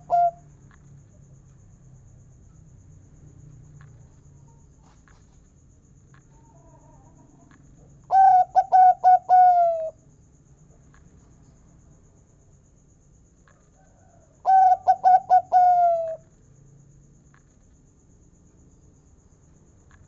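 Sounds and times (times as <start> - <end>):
dove cooing: 0.0 - 0.4, 8.1 - 10.0, 14.4 - 16.2.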